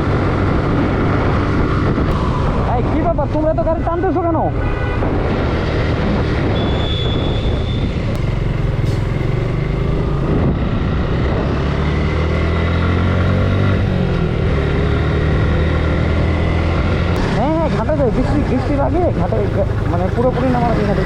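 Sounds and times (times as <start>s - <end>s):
road and wind noise: 0.0s - 21.0s
motorcycle engine running: 8.1s - 10.8s, 15.3s - 21.0s.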